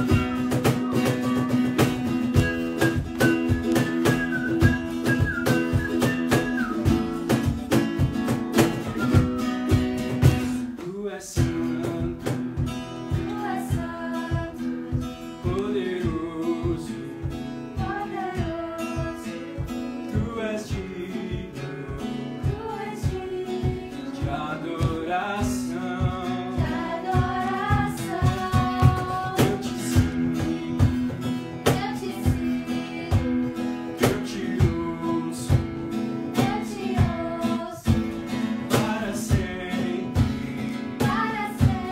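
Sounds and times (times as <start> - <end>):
acoustic guitar strumming: 0.0 - 41.9
person singing: 15.4 - 35.7, 36.3 - 41.9.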